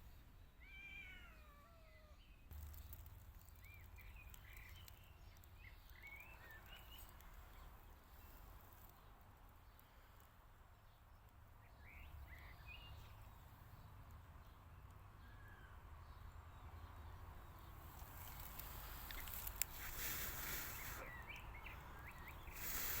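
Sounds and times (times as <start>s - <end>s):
faint bird chirps: 0.1s - 11.0s, 15.2s - 23.0s
hissing rustle: 17.8s - 23.0s.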